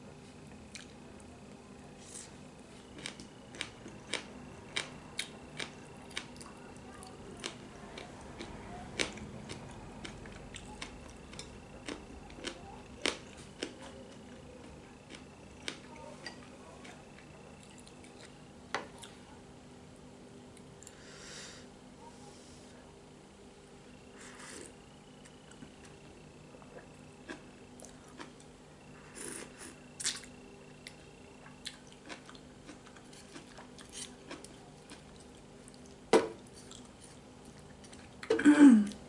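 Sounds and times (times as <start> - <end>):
faint steady hum: 0.0 - 39.0
person eating with smacking clicks: 0.7 - 1.0, 3.0 - 19.2, 26.6 - 28.5, 29.2 - 39.0.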